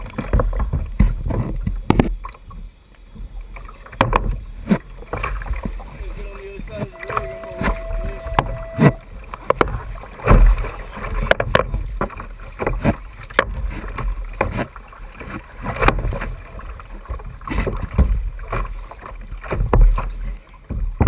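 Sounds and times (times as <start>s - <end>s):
water slapping against hull: 0.0s - 6.9s, 9.5s - 21.0s
splashes: 3.3s - 7.7s, 9.7s - 21.0s
brief steady tone: 6.3s - 9.1s.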